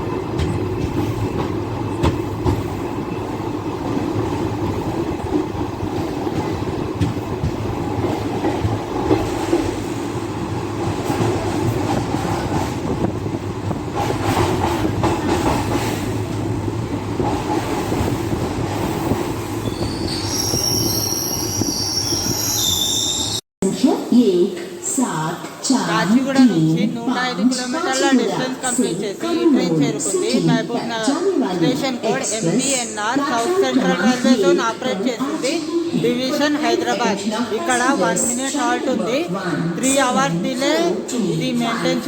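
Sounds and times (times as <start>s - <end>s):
passenger train rumbling: 0.0s - 42.0s
wavering wheel squeal: 19.6s - 23.4s.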